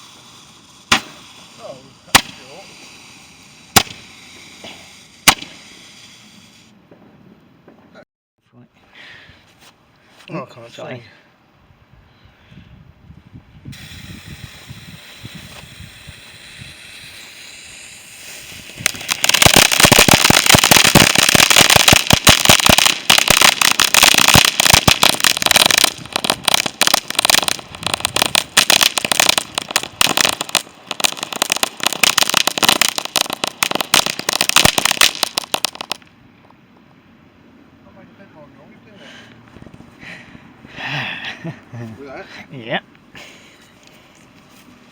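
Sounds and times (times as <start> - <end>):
firework hissing: 0.0 - 6.8, 13.7 - 36.1
rapid crackling bangs: 0.9 - 1.5, 2.1 - 2.5, 3.7 - 4.5, 5.2 - 5.6, 18.4 - 36.1.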